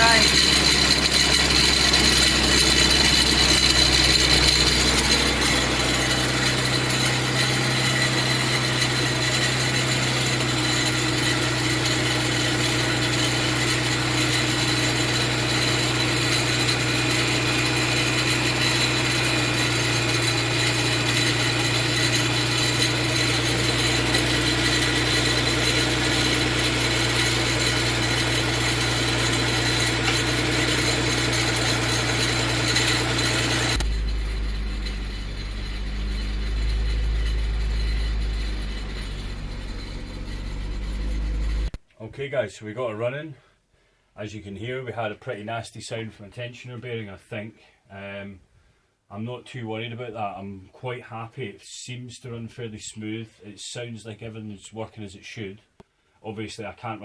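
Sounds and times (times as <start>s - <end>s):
car engine idling: 0.0s - 41.8s
whining grinding bearing: 0.0s - 41.8s.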